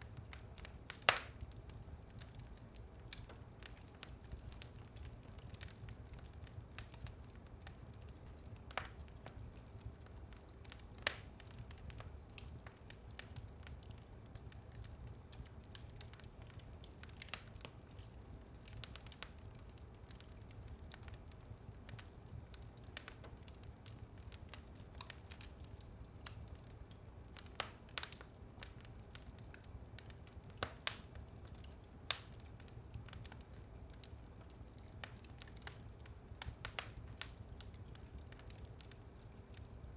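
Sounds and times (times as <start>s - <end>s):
wood fire crackling: 0.0s - 39.9s
sharp pops of fire: 0.3s - 1.4s, 11.0s - 12.1s, 32.1s - 32.4s.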